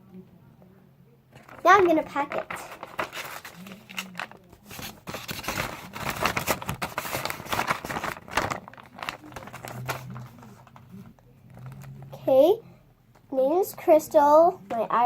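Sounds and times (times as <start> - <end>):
packaging rustling and crinkling: 1.3 - 12.2.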